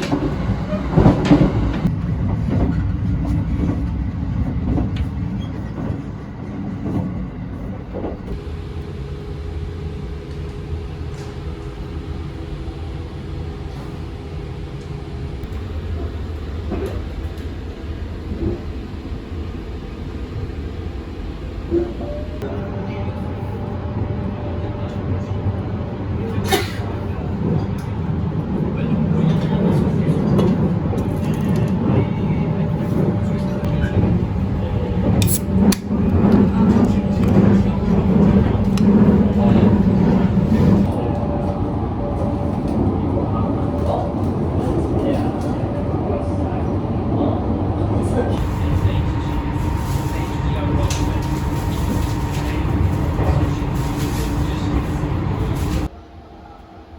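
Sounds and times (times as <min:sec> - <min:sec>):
train rumble: 0:00.0 - 0:56.9
steady hum: 0:08.3 - 0:27.3, 0:47.2 - 0:56.9.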